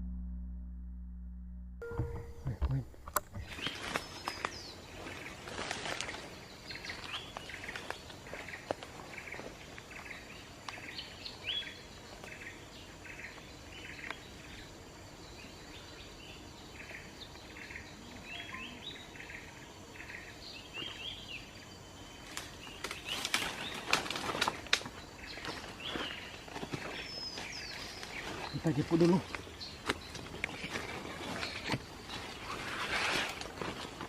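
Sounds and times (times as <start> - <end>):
rhythmic chirping: 1.8 - 4.0
rustling in vegetation: 3.2 - 12.5, 21.9 - 34.0.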